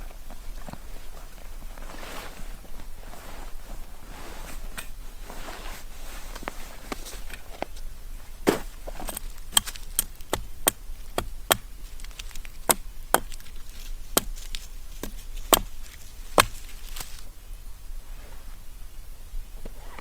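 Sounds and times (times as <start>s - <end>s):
blade chopping into wood: 8.5s - 17.2s.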